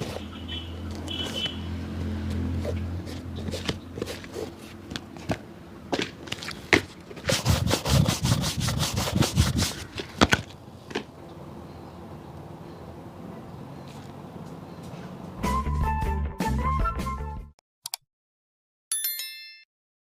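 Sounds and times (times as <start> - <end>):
taps and knocks on shoe: 3.1 - 6.9
brushing strokes: 7.2 - 10.0.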